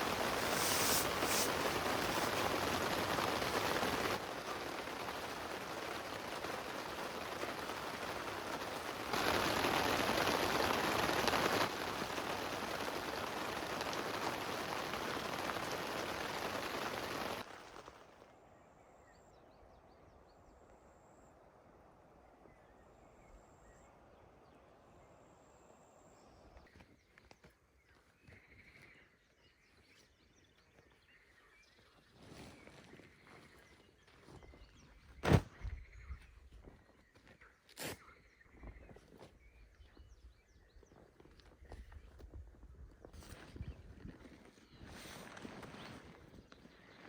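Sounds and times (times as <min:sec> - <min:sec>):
heavy rain hiss: 0:00.0 - 0:17.5.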